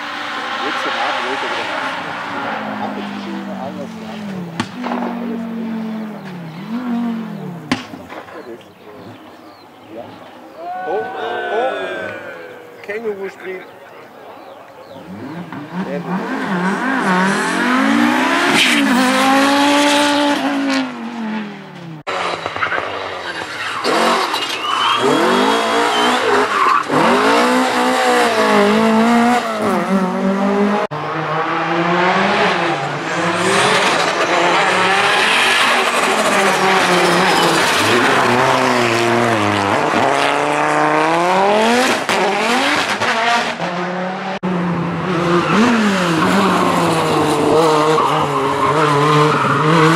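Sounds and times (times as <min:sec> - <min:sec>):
rally car engines revving hard: 0:00.0 - 0:10.7, 0:13.6 - 0:49.9
tyres squealing: 0:23.2 - 0:27.4.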